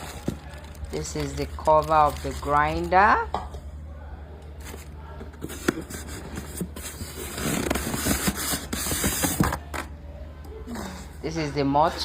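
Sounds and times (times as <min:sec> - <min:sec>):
scraping and rustling packaging: 0:00.0 - 0:03.2, 0:04.6 - 0:09.7.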